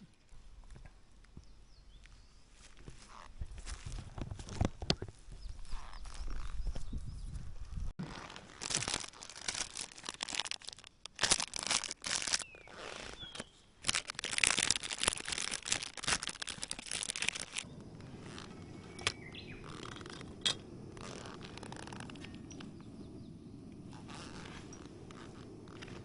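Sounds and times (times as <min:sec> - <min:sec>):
crackling and rustling: 0:02.0 - 0:26.0
faint bird chirps: 0:17.7 - 0:20.0.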